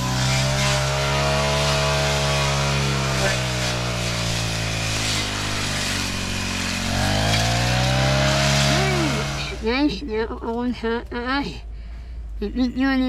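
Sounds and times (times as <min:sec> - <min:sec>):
small petrol engine running: 0:00.0 - 0:10.0.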